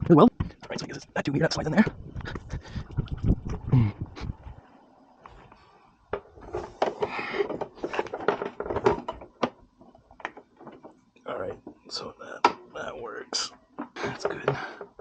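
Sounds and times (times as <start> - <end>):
small hard parts clicking and rattling: 6.2 - 12.8.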